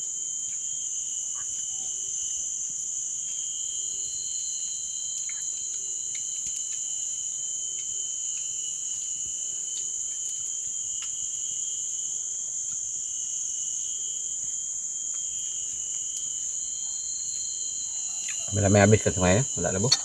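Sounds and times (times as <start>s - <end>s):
insects droning chorus: 0.0s - 20.0s
faint ticks: 5.1s - 7.1s, 9.7s - 11.3s.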